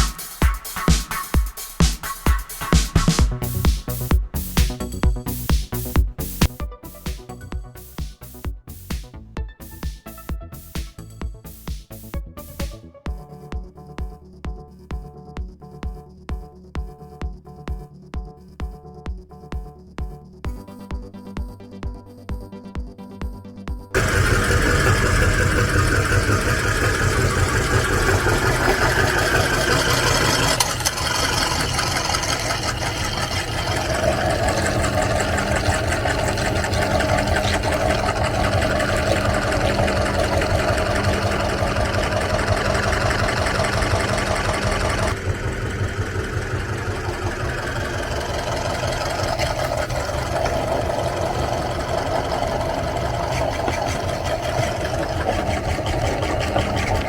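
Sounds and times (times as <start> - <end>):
meat grinder motor humming: 24.0 - 57.0.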